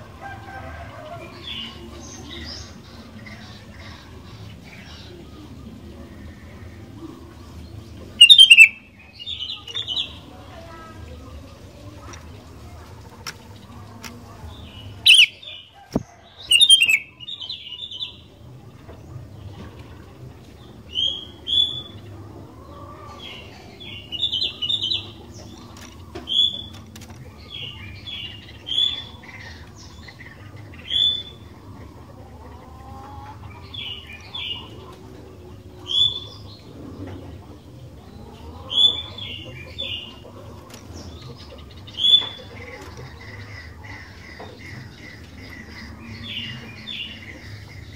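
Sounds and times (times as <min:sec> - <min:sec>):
bulbul calling: 0:08.2 - 0:08.9, 0:15.0 - 0:17.2.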